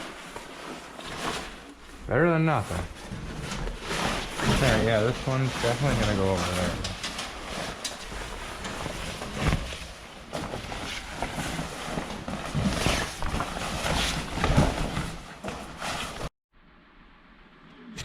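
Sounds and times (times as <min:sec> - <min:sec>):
cover rustling and bumping: 0:02.8 - 0:16.3.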